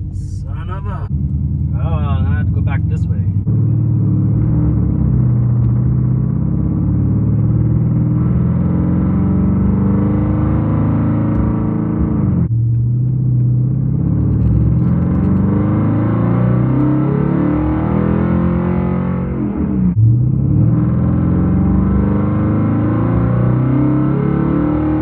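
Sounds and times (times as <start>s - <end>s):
car engine and loud exhaust: 0.0s - 25.0s.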